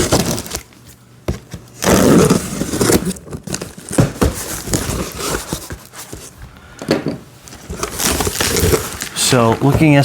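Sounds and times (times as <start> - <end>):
cardboard box being opened: 1.8 - 6.3, 7.7 - 10.0.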